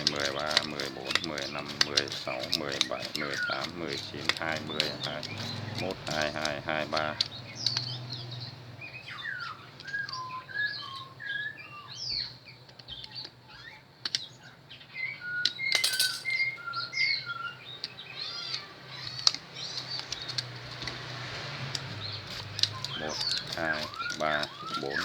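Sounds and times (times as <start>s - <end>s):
sharp clicks: 0.0s - 8.0s, 19.1s - 25.0s
small birds chirping: 0.0s - 25.0s.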